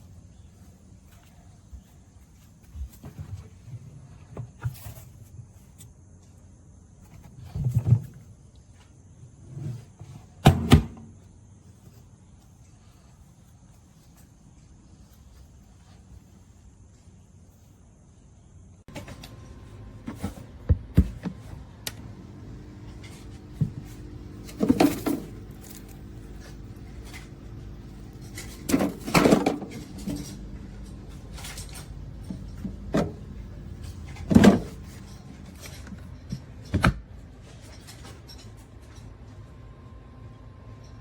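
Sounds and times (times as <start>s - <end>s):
steady low hum: 11.0s - 41.0s
objects knocking and clunking: 18.9s - 39.0s.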